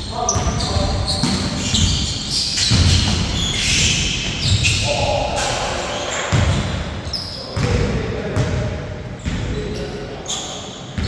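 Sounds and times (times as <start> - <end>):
shoe squeaks on floor: 0.0 - 7.7, 9.2 - 11.0
basketball bouncing on court: 0.3 - 4.8, 6.3 - 9.6.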